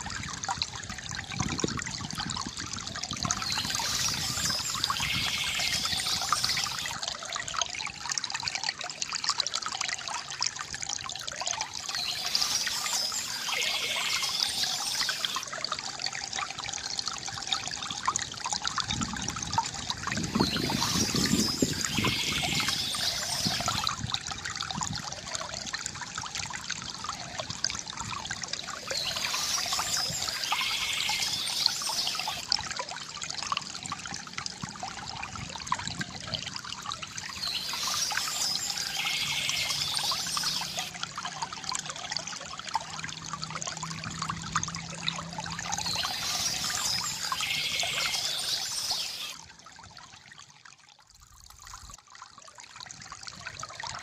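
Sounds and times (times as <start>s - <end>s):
stream water trickling: 0.0s - 54.0s
birdsong: 3.3s - 7.0s, 11.9s - 15.4s, 20.2s - 23.9s, 28.8s - 32.5s, 37.2s - 40.9s, 45.6s - 49.4s.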